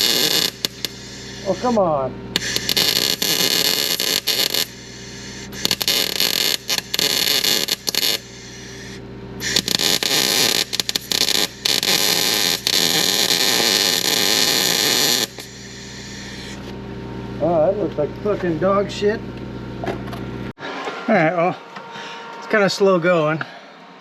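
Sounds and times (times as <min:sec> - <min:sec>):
welding arc crackling and hissing: 0:00.0 - 0:16.7.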